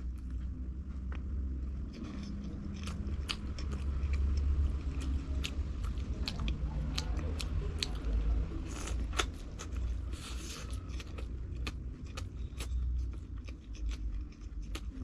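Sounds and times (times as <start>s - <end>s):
chewing food: 0.0s - 15.0s
crisp mouth clicks and crunches: 0.0s - 15.0s.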